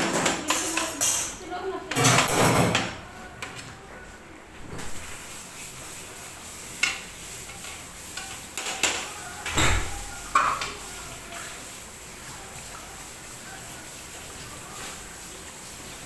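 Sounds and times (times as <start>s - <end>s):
oil frying sizzle: 4.7s - 16.0s.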